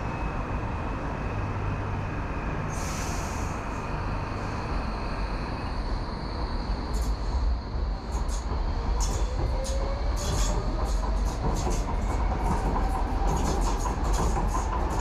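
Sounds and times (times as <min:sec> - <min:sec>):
train rumbling on track: 0:00.0 - 0:15.0
wheels rattling on track: 0:06.9 - 0:15.0.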